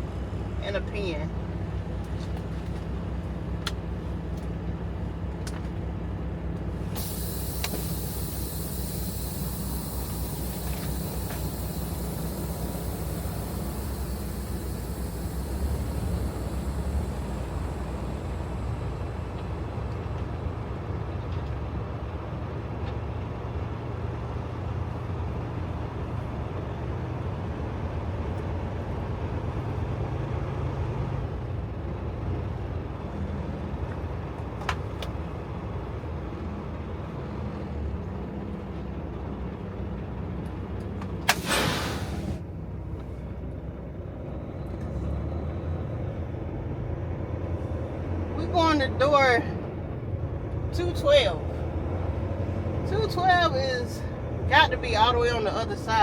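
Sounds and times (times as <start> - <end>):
truck diesel engine running: 0.0 - 56.0
air brakes hissing: 6.8 - 20.4, 41.2 - 42.4.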